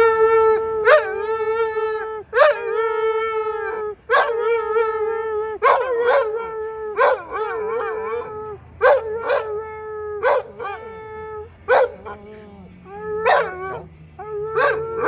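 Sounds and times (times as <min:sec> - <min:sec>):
dog howling: 0:00.0 - 0:15.0.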